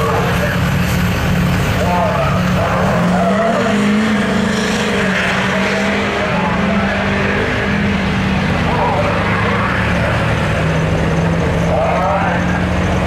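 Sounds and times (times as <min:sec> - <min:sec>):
diesel truck engine revving: 0:00.0 - 0:13.0.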